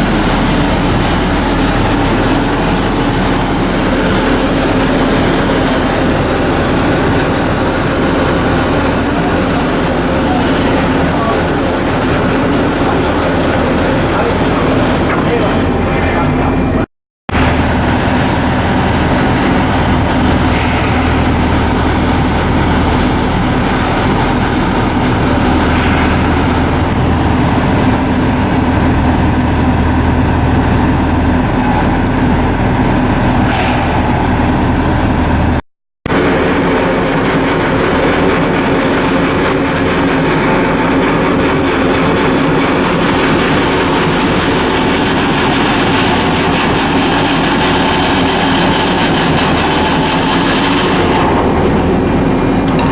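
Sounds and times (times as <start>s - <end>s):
diesel engine humming: 0.0s - 52.9s.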